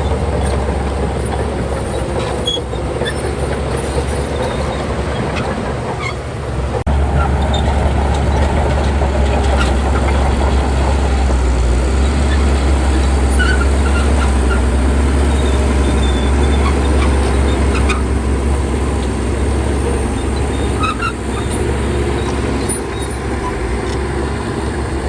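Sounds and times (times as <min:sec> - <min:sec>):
bulldozer diesel engine rumbling: 0:00.0 - 0:25.0
short high squeaks: 0:01.7 - 0:06.3, 0:20.2 - 0:23.6.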